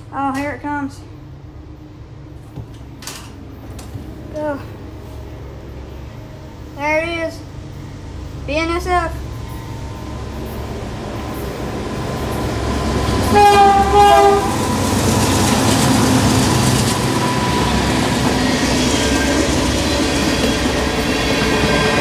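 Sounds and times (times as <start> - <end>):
locomotive engines rumbling: 0.0 - 22.0
wheels clacking over rail joints: 12.3 - 22.0
locomotive horn blasts: 13.2 - 14.8.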